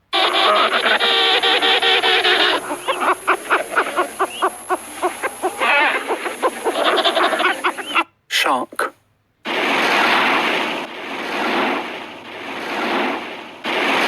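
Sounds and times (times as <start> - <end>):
penguins calling: 0.1 - 8.1.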